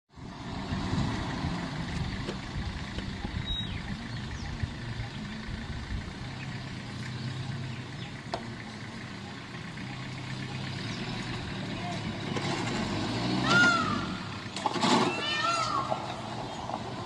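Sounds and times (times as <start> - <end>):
vehicle engine idling: 0.1 - 17.0.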